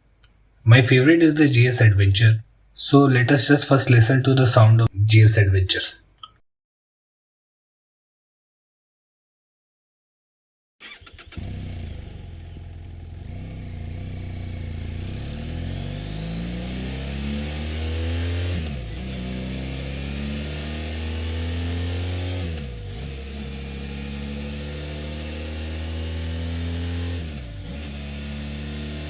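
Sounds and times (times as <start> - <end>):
motorcycle engine revving: 10.8 - 29.0.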